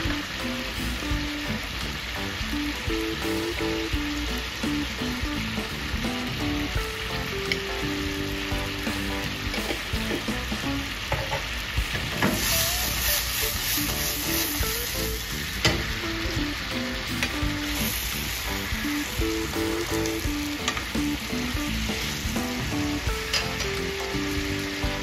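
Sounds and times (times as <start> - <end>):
prawns sizzling in a pan: 0.0 - 25.0
wooden spatula knocking on pan: 9.5 - 12.5.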